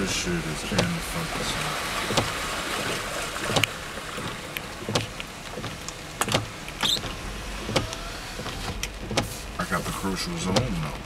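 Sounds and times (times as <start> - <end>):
floodwater sloshing and splashing: 0.0 - 11.0
sharp knocks: 0.7 - 9.3.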